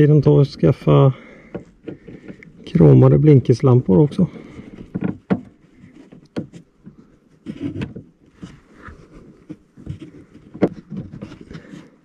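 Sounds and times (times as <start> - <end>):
rustling: 0.4 - 12.0
plastic clicks and knocks: 4.7 - 8.6, 9.4 - 11.7.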